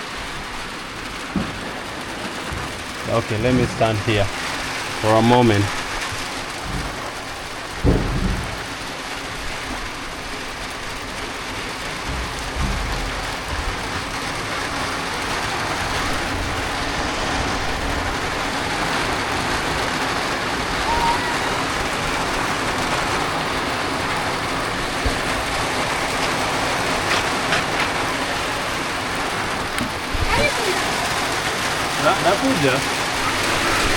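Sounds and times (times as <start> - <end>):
heavy rain falling: 0.0 - 33.9
low thumps: 5.7 - 18.2.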